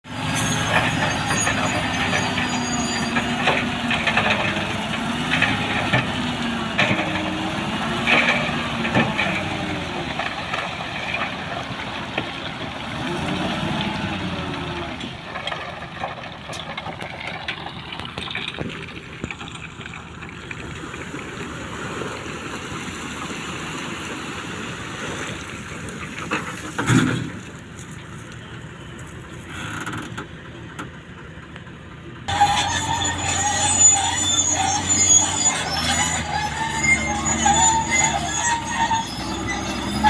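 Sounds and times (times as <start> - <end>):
bulldozer diesel engine under load: 0.0 - 40.0
metallic clanks from tracks: 0.1 - 7.3, 32.2 - 40.0.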